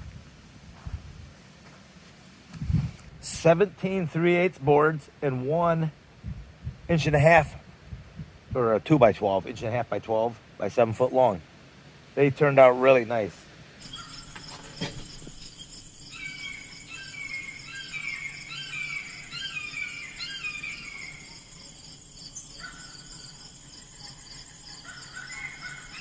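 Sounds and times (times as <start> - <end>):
insects trilling: 13.8 - 26.0.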